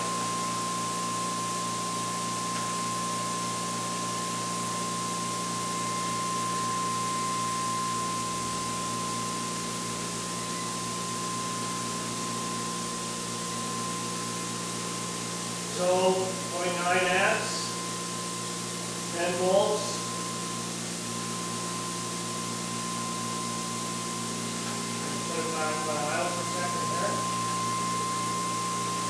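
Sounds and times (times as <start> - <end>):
electric motor humming and whining: 15.5 - 29.0.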